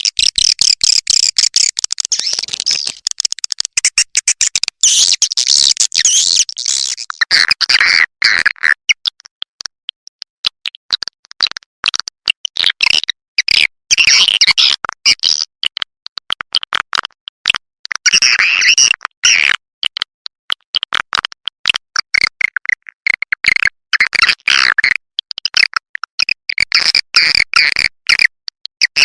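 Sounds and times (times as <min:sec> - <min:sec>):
swiftlet clicks and chirps: 0:00.0 - 0:07.2.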